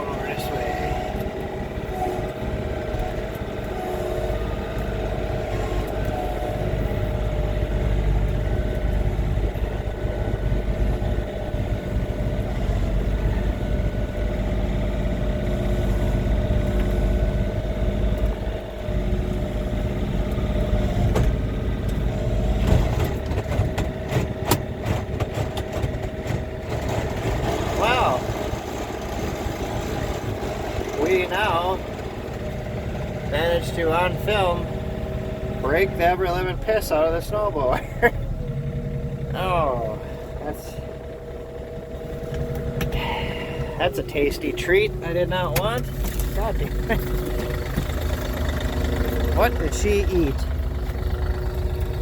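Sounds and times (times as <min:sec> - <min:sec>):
tractor diesel engine running: 0:00.0 - 0:52.0
sharp knocks and clanks: 0:22.6 - 0:27.8.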